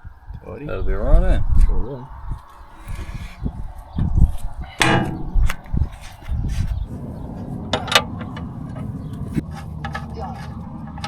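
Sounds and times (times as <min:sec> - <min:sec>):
steady low hum: 0:01.9 - 0:09.4
tools knocking on metal: 0:04.8 - 0:06.8.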